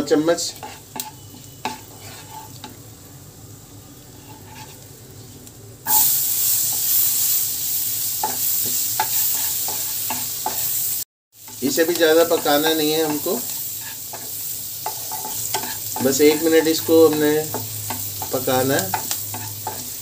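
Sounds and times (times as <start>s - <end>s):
garlic sizzling in butter: 0.0s - 20.0s
loud sizzle of vegetables: 0.0s - 20.0s
wooden spatula scraping pan: 0.4s - 2.8s, 4.2s - 4.8s, 9.0s - 10.7s, 11.6s - 20.0s.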